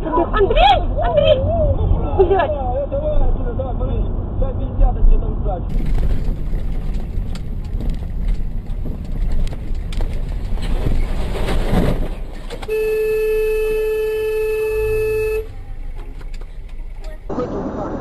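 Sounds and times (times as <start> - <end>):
road and vehicle rumble: 0.0 - 18.0
vehicle horn: 12.7 - 15.7.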